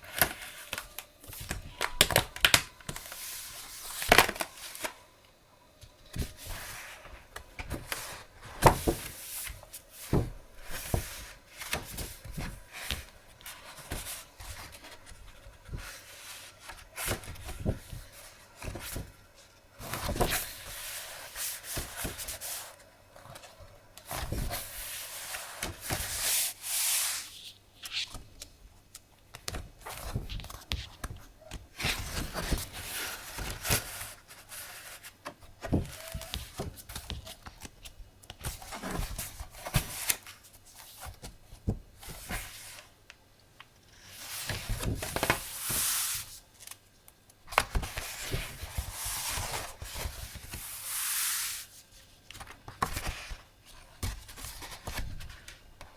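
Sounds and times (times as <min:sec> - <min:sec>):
paper rustling and sliding: 0:24.1 - 0:28.2, 0:44.0 - 0:46.8, 0:47.5 - 0:51.8.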